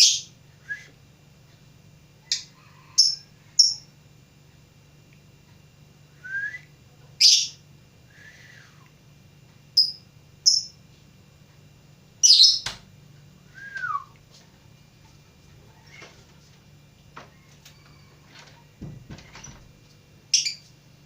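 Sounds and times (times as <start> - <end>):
bird shrill chirps: 12.2 - 12.7, 20.3 - 20.6.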